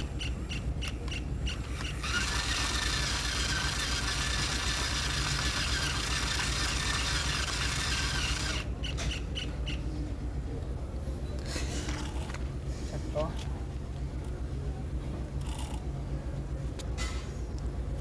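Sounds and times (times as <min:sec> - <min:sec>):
small motor whirring: 0:00.0 - 0:08.7.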